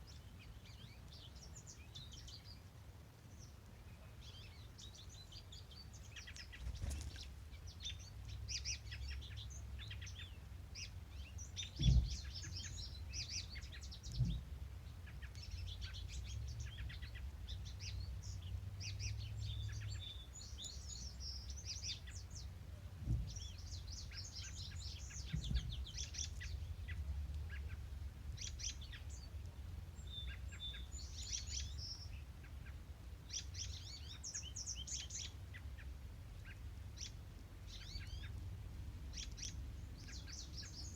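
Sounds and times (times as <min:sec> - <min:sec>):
songbirds singing and chirping: 0:00.0 - 0:40.9.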